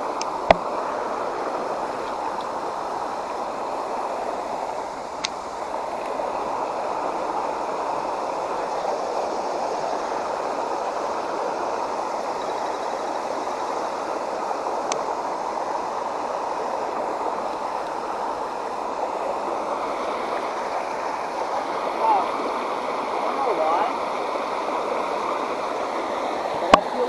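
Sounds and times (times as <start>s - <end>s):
creek water running: 0.0s - 27.0s.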